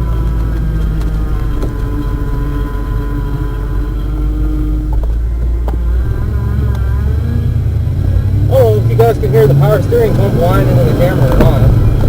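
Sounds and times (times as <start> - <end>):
power steering pump whine: 0.0 - 12.0
truck engine rumbling: 0.0 - 12.0.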